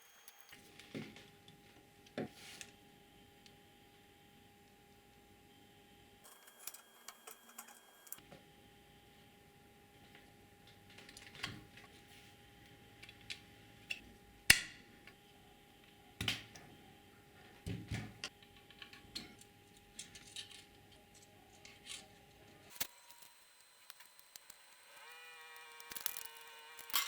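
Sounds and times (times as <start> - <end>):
small parts clicking and tapping: 18.2 - 22.1, 22.7 - 27.0.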